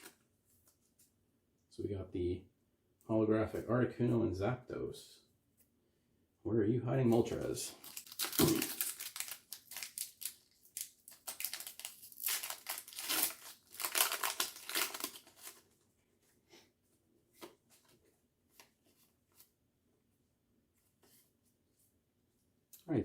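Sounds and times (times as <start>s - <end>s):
foil wrapper crinkling and tearing: 7.8s - 15.6s.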